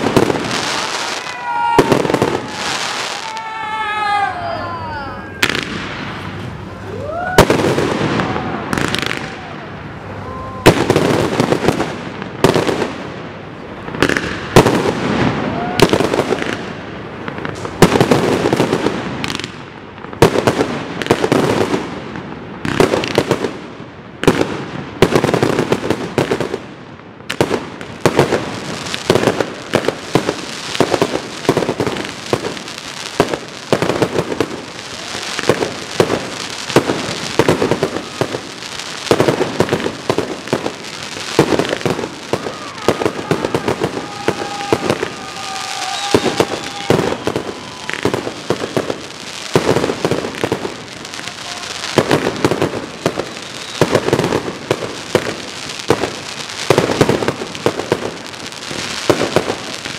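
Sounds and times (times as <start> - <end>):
firework crackle and hiss: 0.0 - 4.5, 5.3 - 59.9
firework shells bursting: 33.2 - 58.1.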